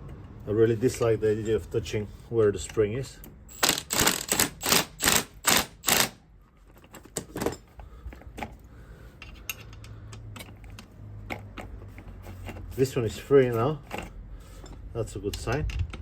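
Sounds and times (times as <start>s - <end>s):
ratchet wrench clicking: 3.5s - 6.2s.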